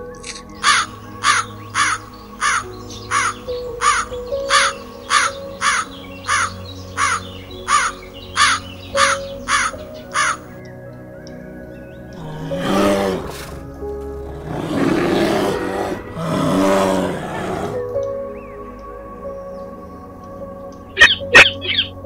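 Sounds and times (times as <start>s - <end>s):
background music held notes: 0.0s - 22.0s
bird harsh caw-like calls: 0.6s - 10.5s.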